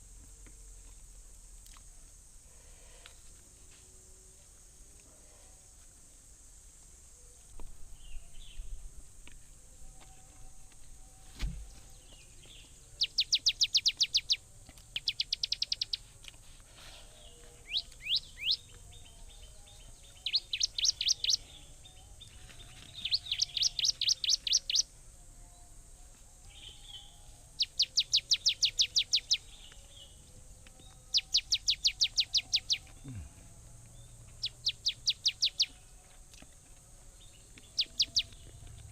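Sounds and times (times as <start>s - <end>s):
steady high hiss: 0.0s - 26.6s
bird singing trills: 11.0s - 16.1s, 17.2s - 24.9s, 26.4s - 33.3s, 33.9s - 36.6s, 37.2s - 38.9s.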